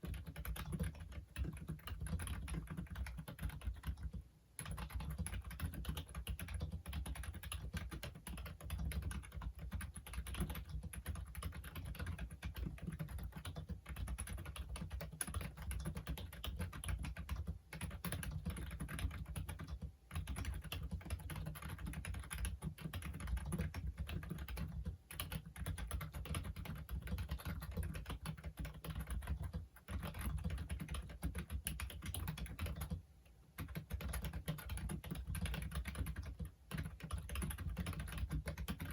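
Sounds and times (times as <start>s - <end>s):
keyboard typing clicks: 0.0s - 38.9s.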